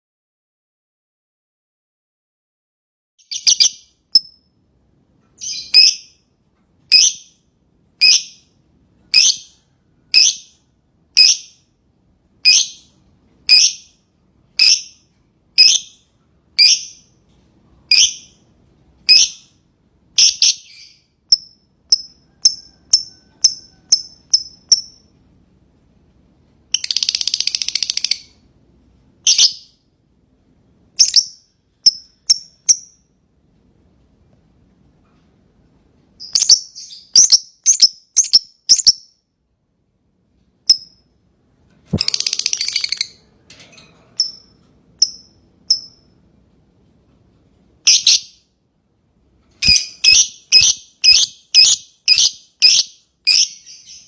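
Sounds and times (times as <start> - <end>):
lovebird calling: 3.2 - 3.9, 49.6 - 54.0
lovebird chattering trill: 3.2 - 4.3, 31.0 - 33.0, 41.9 - 43.2, 47.9 - 48.4, 49.6 - 54.0.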